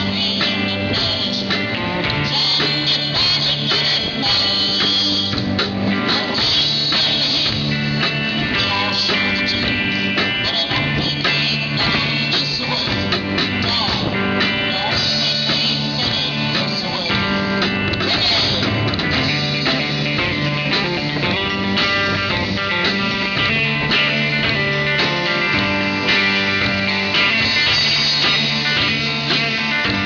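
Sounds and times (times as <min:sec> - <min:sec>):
country band playing: 0:00.0 - 0:30.0
guitar: 0:00.0 - 0:30.0.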